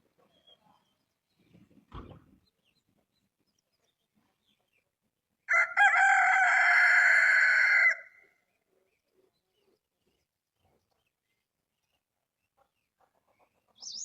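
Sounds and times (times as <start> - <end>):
rooster crowing: 5.5 - 8.2.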